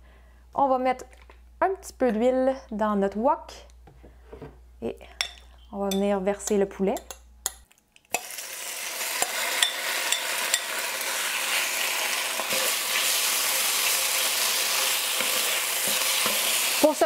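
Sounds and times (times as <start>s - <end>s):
metal spoon clicking on a bowl: 5.2s - 7.7s
chicken sizzling in hot oil: 8.2s - 17.0s.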